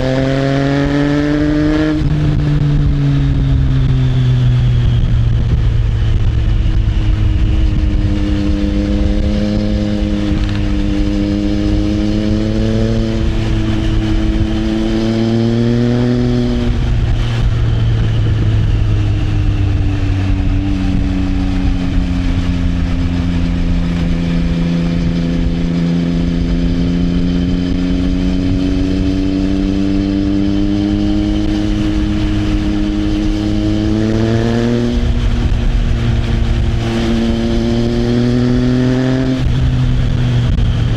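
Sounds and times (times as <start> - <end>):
motorcycle engine pulling along: 0.0 - 40.9.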